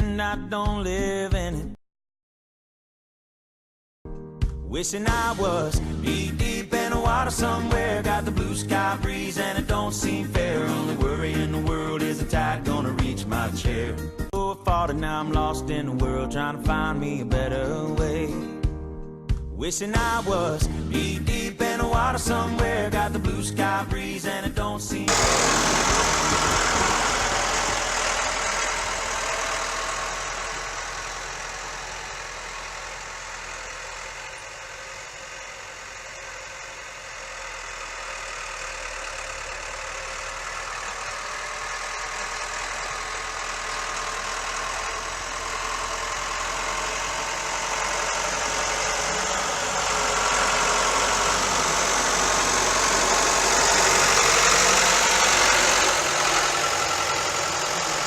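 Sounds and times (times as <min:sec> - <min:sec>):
tractor diesel engine running: 0:05.0 - 0:14.2, 0:24.9 - 0:58.0.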